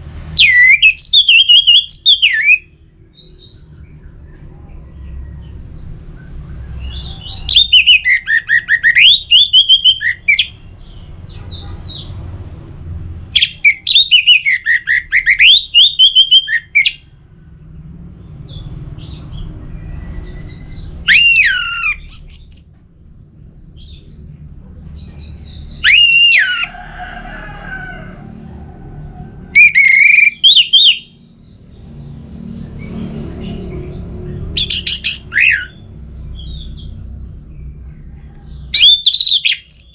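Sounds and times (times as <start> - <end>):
low background rumble: 16.9 - 30.4.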